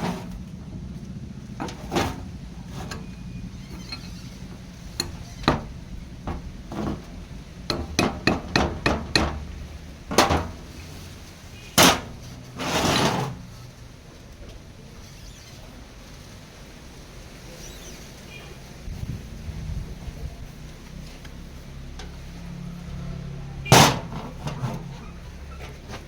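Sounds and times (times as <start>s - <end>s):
scraping rasp: 0.0s - 0.5s, 1.6s - 13.6s, 23.7s - 26.0s
tool knocks and taps: 7.7s - 9.5s.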